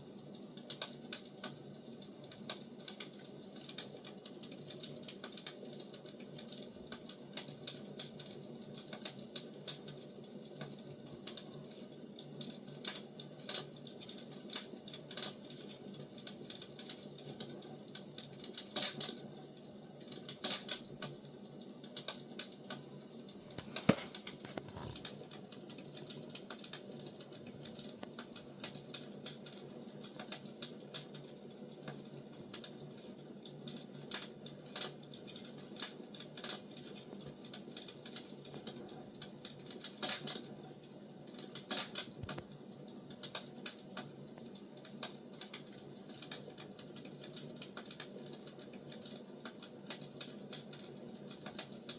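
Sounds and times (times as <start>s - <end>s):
firewood crackling and popping: 21.8s - 31.2s, 41.3s - 51.8s.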